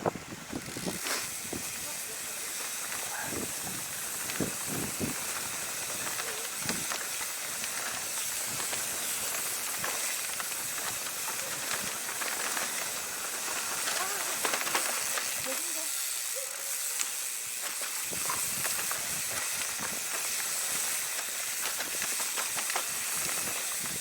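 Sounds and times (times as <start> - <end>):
tyres rolling over dirt: 0.0 - 16.2, 16.8 - 24.0
bike knocking and rattling: 0.0 - 24.0
wind hiss: 0.0 - 24.0.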